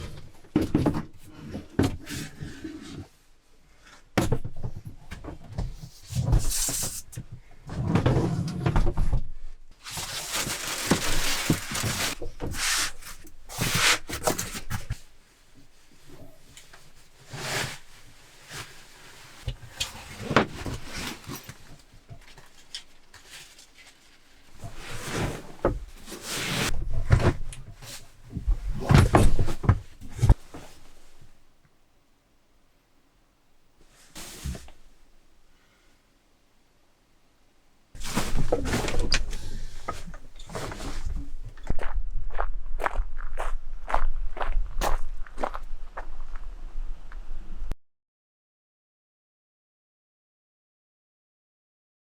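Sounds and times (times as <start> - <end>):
handling noises: 9.8 - 31.4, 38.0 - 41.8
rustling: 9.8 - 31.4, 38.0 - 41.6.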